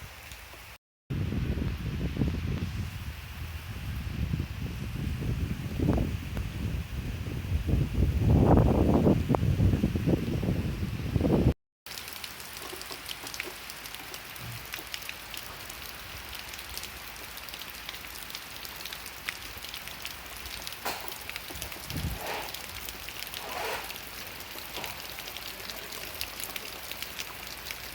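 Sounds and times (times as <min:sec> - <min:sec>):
steady rain falling: 0:00.0 - 0:27.9
raindrops ticking: 0:11.9 - 0:27.9.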